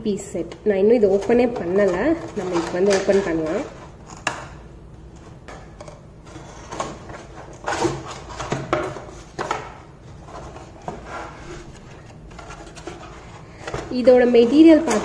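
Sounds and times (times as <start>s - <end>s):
cardboard rustling and scraping: 1.0s - 4.4s, 5.1s - 15.0s.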